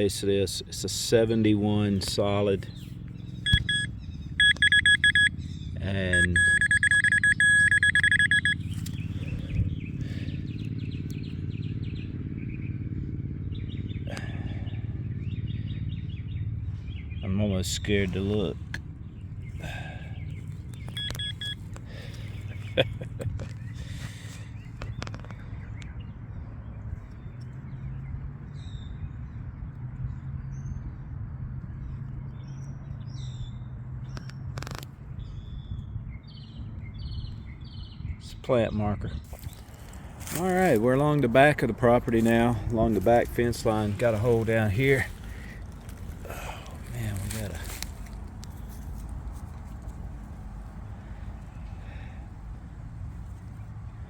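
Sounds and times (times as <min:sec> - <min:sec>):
songbirds chirping: 0:00.0 - 0:54.0
bird trilled chirps: 0:03.3 - 0:09.5
metal detector tone: 0:03.4 - 0:08.8, 0:20.9 - 0:21.6.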